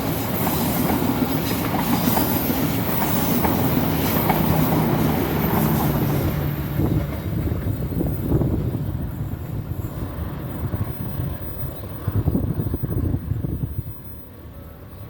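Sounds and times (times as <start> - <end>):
train engine hum: 0.0 - 15.0
train wheels rumbling: 0.0 - 15.0.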